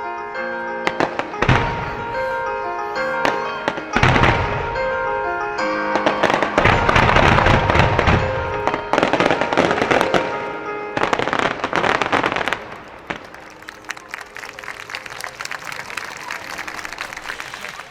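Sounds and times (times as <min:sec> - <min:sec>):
fireworks crackling: 0:00.9 - 0:05.0, 0:05.9 - 0:10.4, 0:11.0 - 0:17.9
fireworks booming: 0:00.9 - 0:05.2, 0:05.9 - 0:13.3.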